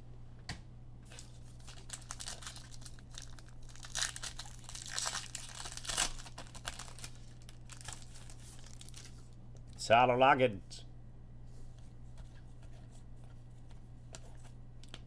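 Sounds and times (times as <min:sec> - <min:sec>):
foil wrappers tearing and crinkling: 0:01.1 - 0:09.3.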